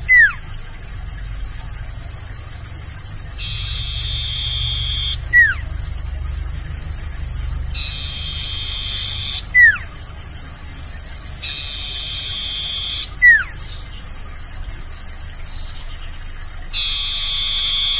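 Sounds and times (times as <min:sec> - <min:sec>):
bird singing high notes: 0:00.0 - 0:00.4, 0:03.4 - 0:05.7, 0:07.8 - 0:09.9, 0:11.4 - 0:13.8, 0:16.8 - 0:17.9
low hum: 0:00.0 - 0:17.9.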